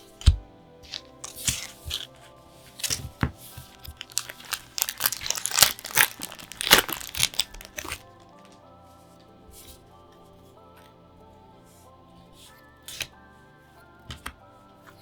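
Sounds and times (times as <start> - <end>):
packaging crinkling and tearing: 0.0 - 8.6.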